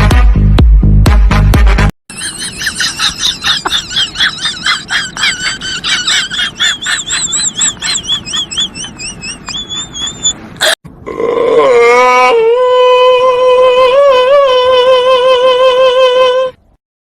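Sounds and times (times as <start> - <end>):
high-pitched squealing chirps: 2.1 - 10.8
warbling whistle: 6.7 - 10.4.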